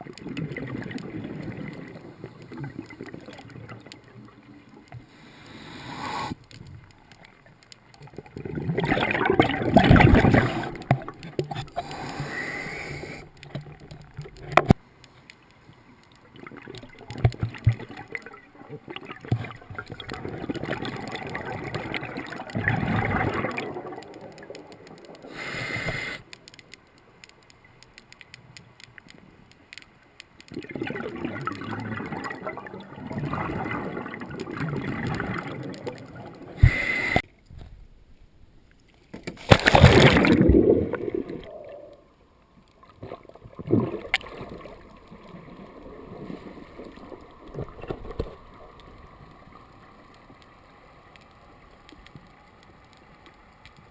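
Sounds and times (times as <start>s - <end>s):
sharp hisses: 5.1s - 6.4s
air bubbling underwater: 39.6s - 41.8s.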